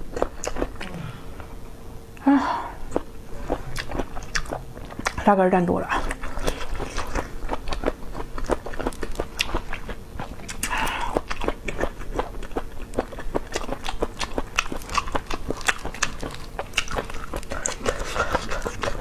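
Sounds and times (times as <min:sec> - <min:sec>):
wet chewing clicks and smacks: 0:02.9 - 0:05.2, 0:06.0 - 0:19.0.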